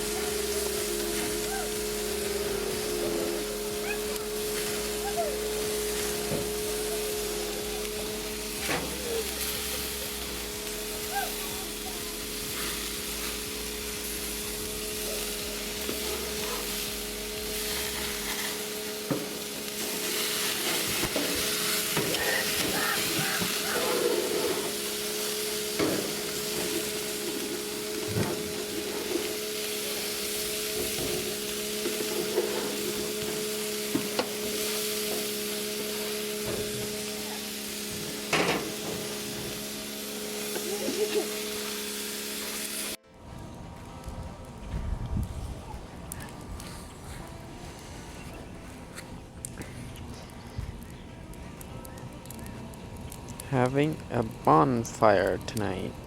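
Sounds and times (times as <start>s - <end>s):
low hum: 0.0s - 23.0s
patties sizzling on a grill: 0.0s - 48.7s, 49.3s - 56.0s.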